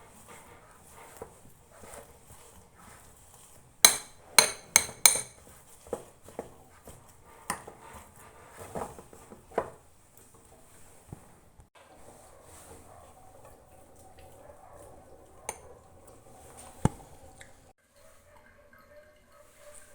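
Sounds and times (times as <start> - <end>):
utensils knocking and clattering: 3.8 - 8.0
metallic taps on dishes: 3.9 - 5.4.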